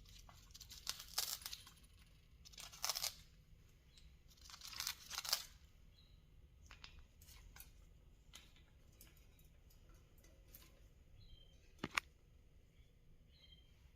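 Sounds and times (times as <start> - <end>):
parrot chewing a toy: 0.0 - 3.3.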